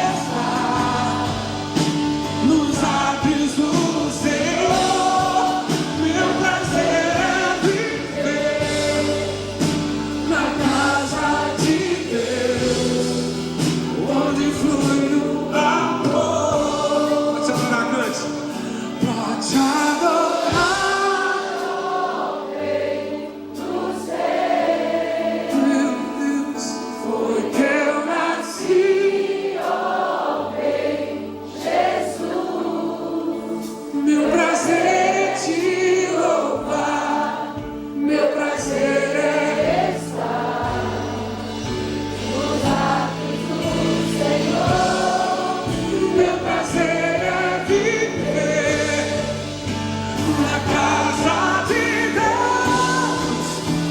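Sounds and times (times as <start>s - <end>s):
held bass notes: 0.0s - 17.9s, 39.2s - 53.9s
band accompaniment: 0.0s - 53.9s
gospel choir singing: 0.0s - 53.9s.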